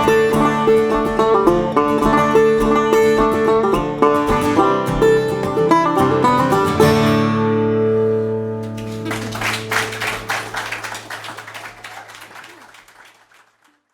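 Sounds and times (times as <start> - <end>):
audience applause: 8.6 - 13.9.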